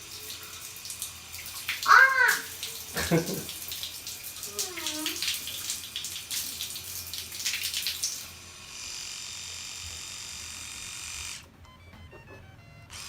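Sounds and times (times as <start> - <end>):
tap water splashing into sink: 0.0 - 8.3
electric toothbrush buzzing: 0.0 - 11.6, 12.4 - 13.0.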